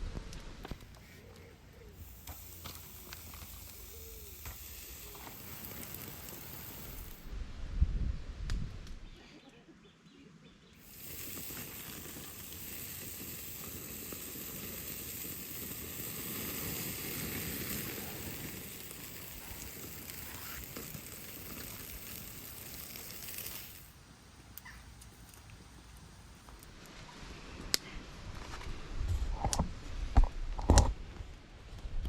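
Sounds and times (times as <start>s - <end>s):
wood fire hissing: 0.3s - 7.3s, 10.8s - 26.9s.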